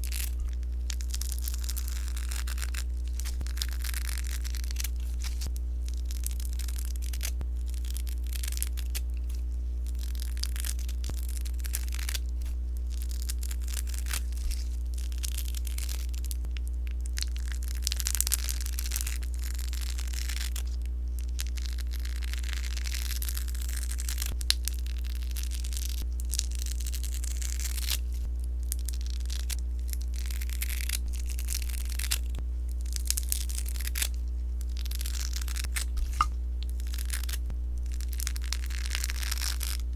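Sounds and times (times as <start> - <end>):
slime crackling and rustling: 0.0 - 39.9
steady low hum: 0.0 - 39.9.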